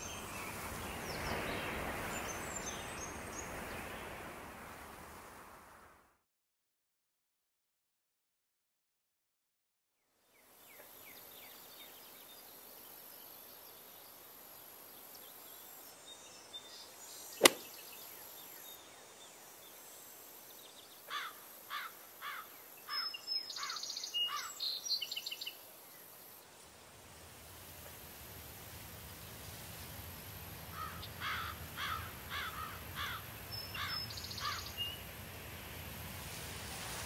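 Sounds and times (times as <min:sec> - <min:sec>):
faint steady hiss: 0:00.0 - 0:06.0, 0:10.1 - 0:37.0
sharp click: 0:17.4 - 0:17.7
bird twittering: 0:30.8 - 0:35.0
bird chirping: 0:30.8 - 0:35.1.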